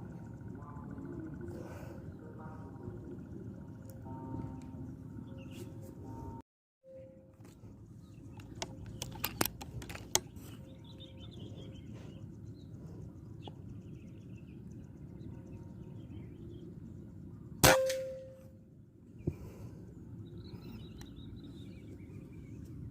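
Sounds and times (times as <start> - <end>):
sharp metallic crack: 17.6 - 18.5.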